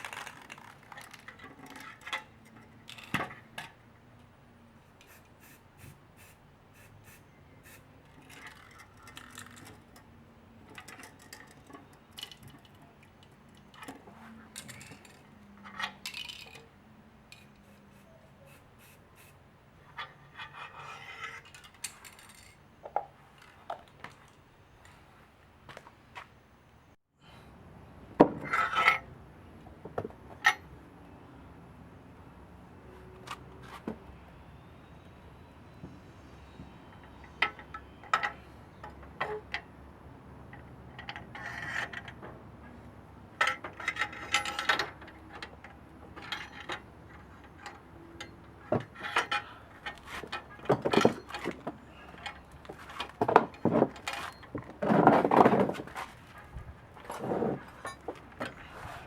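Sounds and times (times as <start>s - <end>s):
metal tools clinking and clattering: 43.4s - 45.5s, 46.1s - 59.0s.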